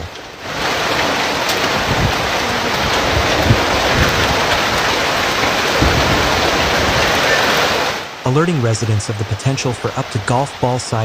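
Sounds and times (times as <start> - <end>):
heavy rain pouring: 0.0 - 11.0
low thuds: 1.5 - 8.0.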